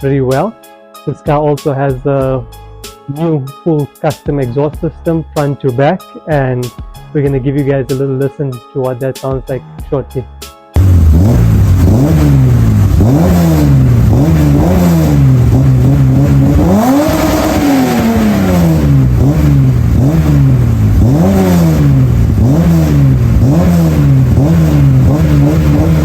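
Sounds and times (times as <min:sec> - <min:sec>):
car engine revving: 0:10.8 - 0:26.0.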